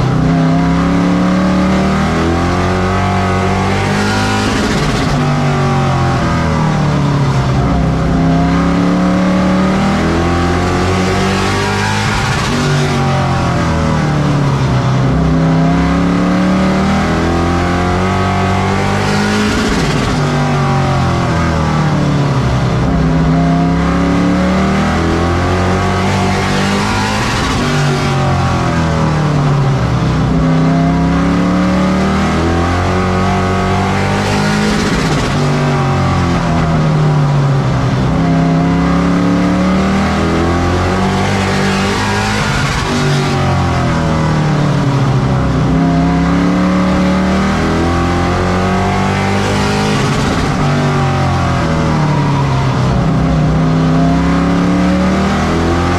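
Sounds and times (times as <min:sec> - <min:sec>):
race truck engine at full throttle: 0:00.0 - 0:55.9.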